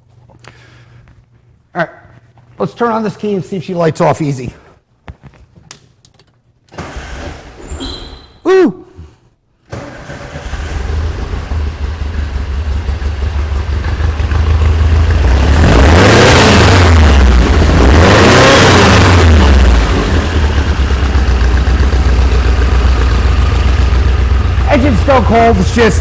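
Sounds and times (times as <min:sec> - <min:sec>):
car engine revving and idling: 0:10.3 - 0:26.0.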